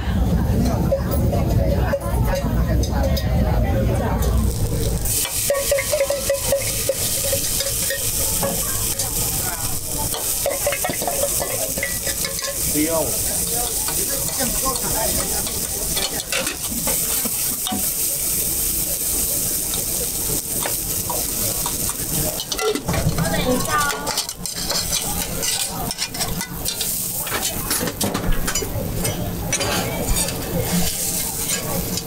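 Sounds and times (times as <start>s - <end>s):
potato frying sizzle: 4.2s - 32.0s
metal utensil scraping and clinking: 4.3s - 17.9s, 20.6s - 32.0s.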